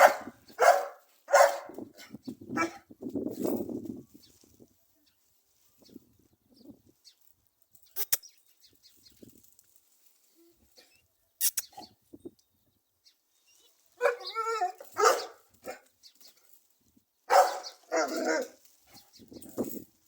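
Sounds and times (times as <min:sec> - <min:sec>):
dog barking: 0:00.0 - 0:02.8, 0:14.0 - 0:14.3, 0:14.9 - 0:15.8, 0:17.3 - 0:18.6
sharp clicks: 0:11.4 - 0:11.7.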